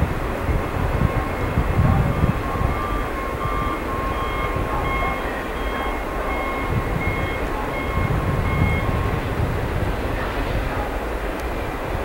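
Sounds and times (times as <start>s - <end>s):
freight train rumbling: 0.0s - 12.0s
high electronic beep: 2.1s - 9.0s.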